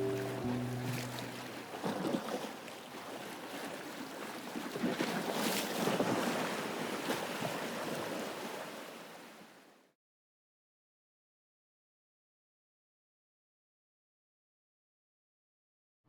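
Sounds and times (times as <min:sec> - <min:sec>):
water lapping and splashing: 0:00.0 - 0:09.8.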